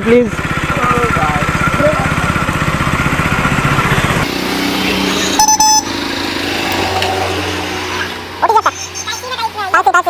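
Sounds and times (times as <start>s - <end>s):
motorcycle engine idling: 0.0s - 6.3s
short high beep: 5.4s - 5.9s.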